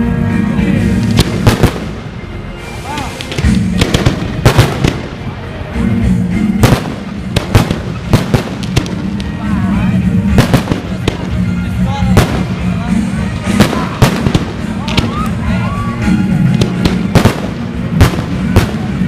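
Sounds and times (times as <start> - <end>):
loud music: 0.0 - 19.0
fireworks bangs: 0.6 - 5.6, 6.5 - 19.0.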